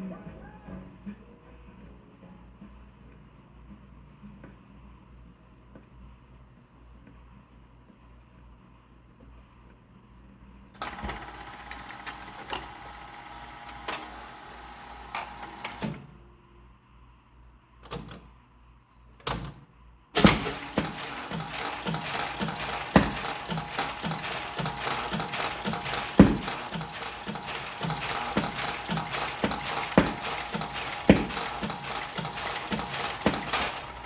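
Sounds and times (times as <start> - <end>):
jukebox mechanism clunks: 20.2 - 34.0
jukebox motor whirring and clicking: 20.2 - 34.0.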